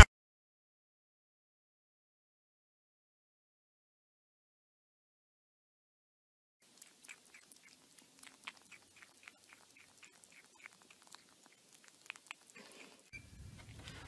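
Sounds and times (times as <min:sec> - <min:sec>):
kitten chewing plastic lid: 0:06.6 - 0:14.0.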